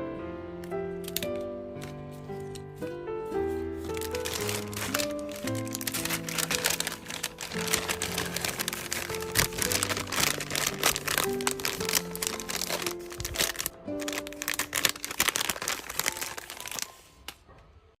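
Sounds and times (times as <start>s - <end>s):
soft background music: 0.0s - 18.0s
packing materials rustling: 1.0s - 17.4s.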